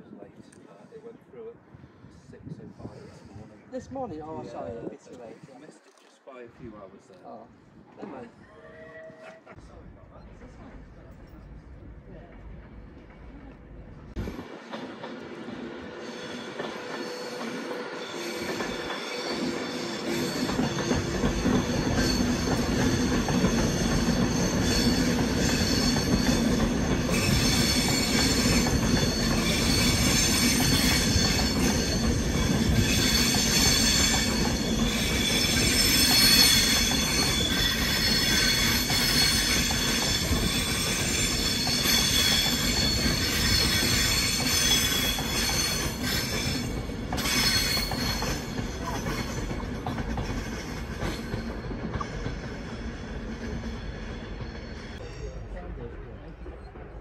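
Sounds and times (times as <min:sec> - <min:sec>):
train running past: 0:09.5 - 0:57.0
wheels squealing on rails: 0:12.7 - 0:55.5.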